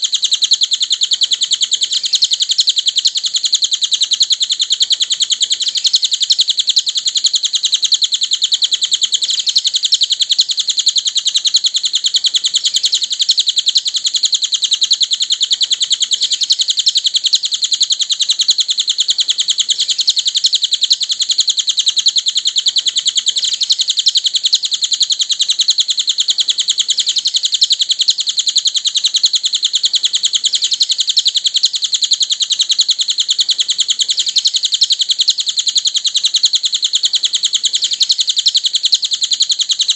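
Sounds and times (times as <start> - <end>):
bird trilling high chirps: 0.0 - 39.9.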